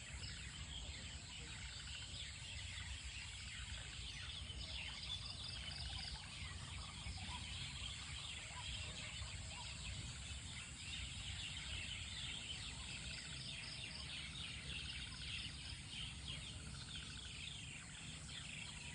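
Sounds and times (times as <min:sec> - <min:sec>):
birds chirping in chorus: 0:00.0 - 0:18.9.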